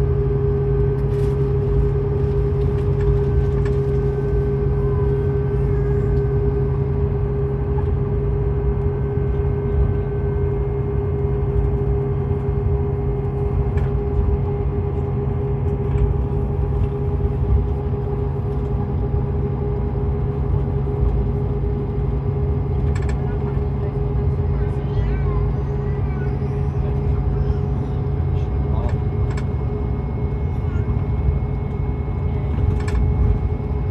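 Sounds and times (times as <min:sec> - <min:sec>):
coach engine and road drone: 0:00.0 - 0:33.9.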